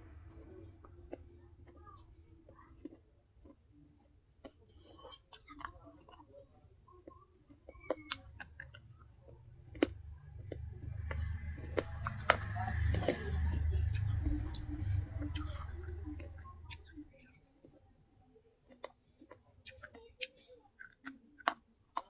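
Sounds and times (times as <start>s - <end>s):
low rumble: 0.0s - 2.5s, 9.1s - 17.1s
crunching and chewing clay: 4.3s - 17.8s, 18.6s - 22.0s.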